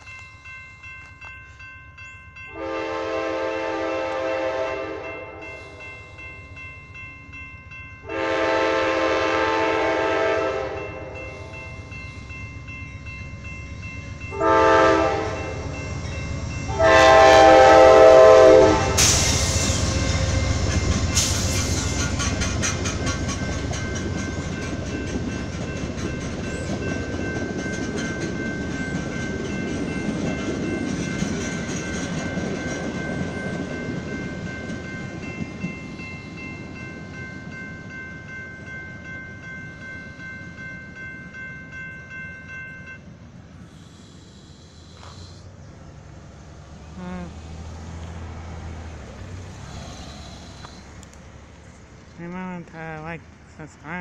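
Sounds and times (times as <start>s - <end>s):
locomotive engine rumbling: 0.0s - 54.0s
train horn blasts: 2.5s - 5.6s, 8.0s - 11.5s, 14.3s - 15.6s, 16.7s - 20.3s
train wheel clatter: 18.8s - 35.9s.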